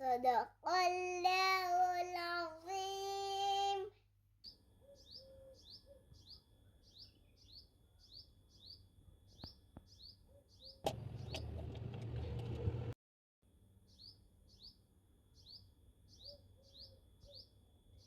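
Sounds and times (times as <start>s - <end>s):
small bird chirping: 4.4s - 11.6s, 13.9s - 18.0s.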